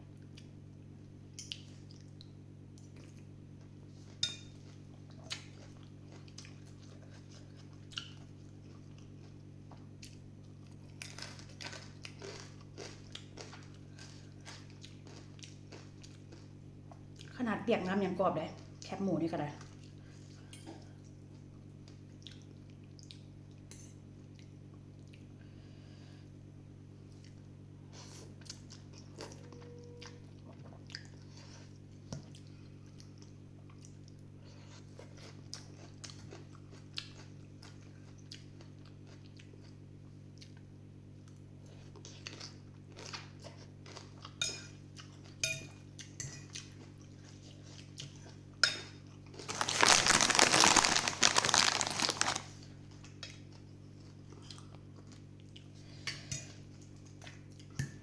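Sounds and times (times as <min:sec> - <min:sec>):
steady low hum: 0:00.0 - 0:58.0
chewing: 0:04.0 - 0:17.4, 0:19.6 - 0:23.6, 0:27.1 - 0:48.4, 0:49.2 - 0:56.0
utensils clinking on a bowl: 0:45.4 - 0:46.5.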